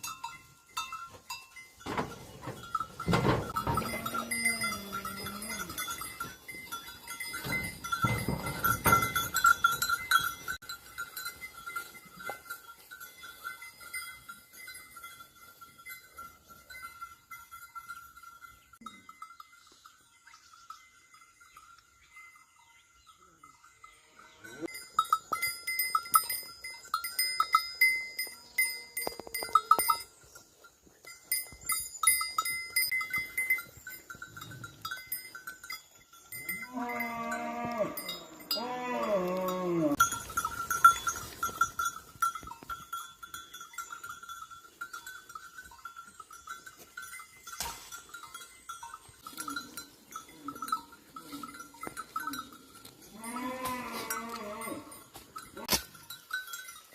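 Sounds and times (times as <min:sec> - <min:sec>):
livestock bells clanging: 0:00.0 - 0:56.9
farm animal calling: 0:02.4 - 0:10.5, 0:36.3 - 0:41.7, 0:49.0 - 0:55.9.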